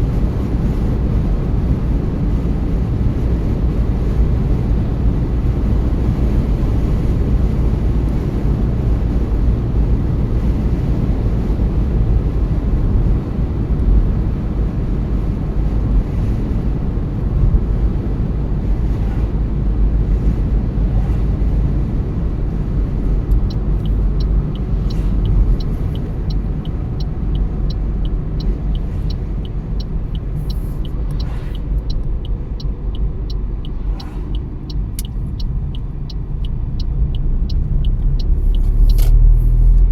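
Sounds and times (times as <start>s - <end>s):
road and tyre rumble: 0.0s - 39.9s
regular ticking: 23.3s - 38.9s.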